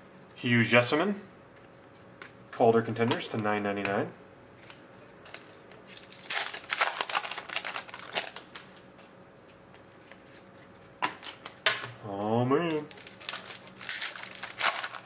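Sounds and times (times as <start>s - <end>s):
cards and wrapper rustling: 4.6s - 8.7s, 12.6s - 15.0s.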